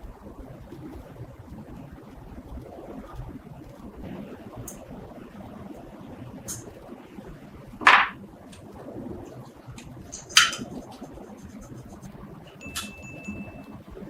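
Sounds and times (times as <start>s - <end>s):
light metallic clink: 12.5s - 13.7s.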